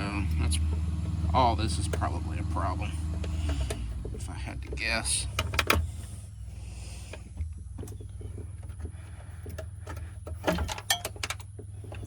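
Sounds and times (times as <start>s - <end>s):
tools clicking and knocking: 7.2s - 12.0s.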